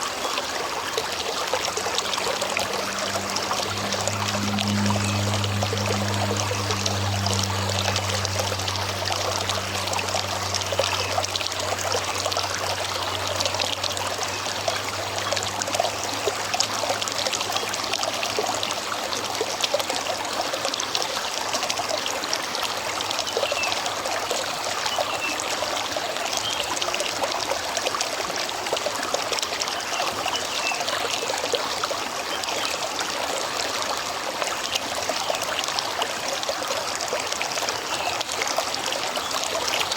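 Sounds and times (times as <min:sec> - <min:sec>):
river water over rocks: 0:00.0 - 0:39.9
low hum: 0:01.0 - 0:19.3.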